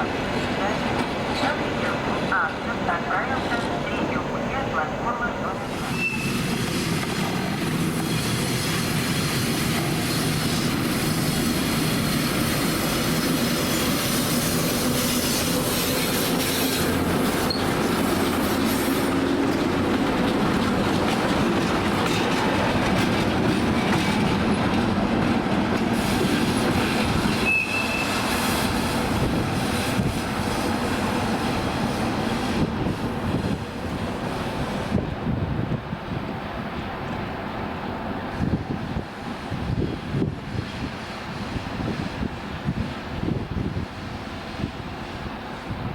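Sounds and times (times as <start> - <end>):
train wheels rolling on rails: 0.0 - 45.9
wheel squealing on rail: 5.6 - 19.8, 25.9 - 31.2.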